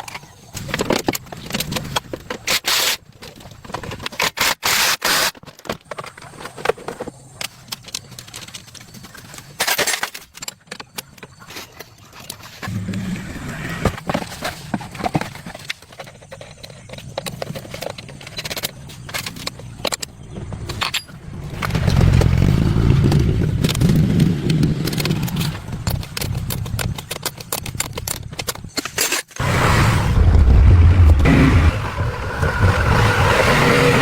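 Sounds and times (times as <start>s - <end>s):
clicks and scrapes: 23.6s - 31.7s
vehicle engine rumbling: 29.4s - 34.0s.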